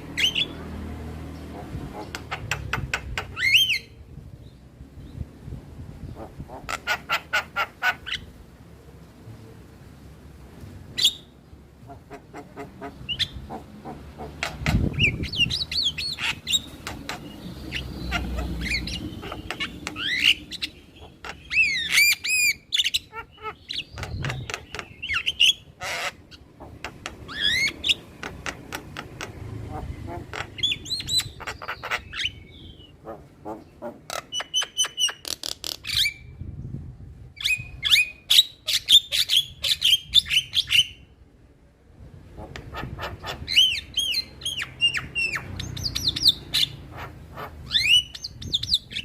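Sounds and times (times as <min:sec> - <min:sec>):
myna calling: 0:11.8 - 0:35.2.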